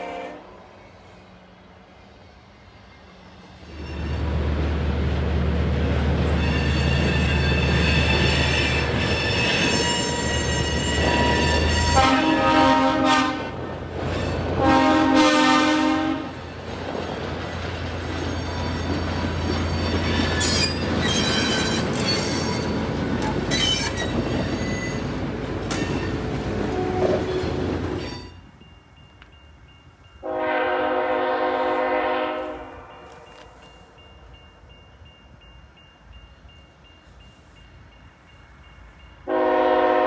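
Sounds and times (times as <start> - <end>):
locomotive air horn blasts: 0.0 - 0.6, 9.2 - 13.6, 14.6 - 16.4, 26.7 - 27.4, 30.2 - 33.4, 39.3 - 40.0
train rumbling past: 0.0 - 40.0
high wheel squeal: 3.6 - 4.4, 6.3 - 12.0, 18.1 - 22.9, 23.5 - 25.1.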